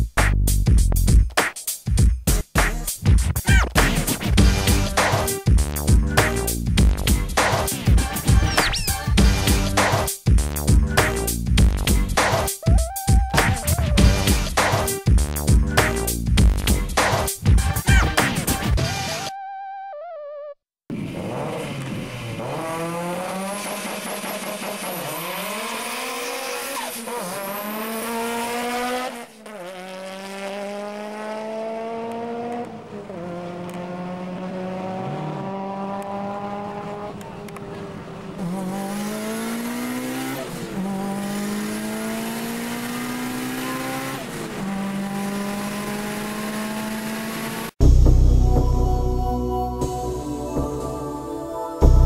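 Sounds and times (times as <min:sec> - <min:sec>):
music: 0:00.0 - 0:19.3, 0:47.8 - 0:52.0
car engine revving and accelerating: 0:20.9 - 0:47.8.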